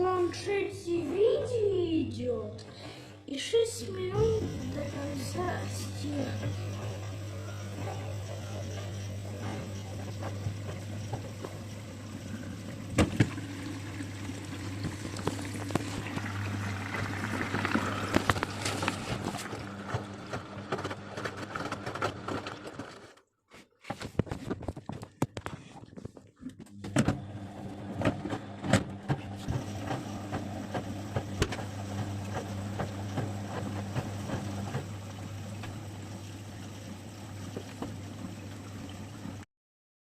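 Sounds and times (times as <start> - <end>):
washing machine motor hum: 0.0 - 39.4
water sloshing in drum: 4.2 - 20.3, 29.4 - 39.4
washing machine knocks: 12.9 - 13.6.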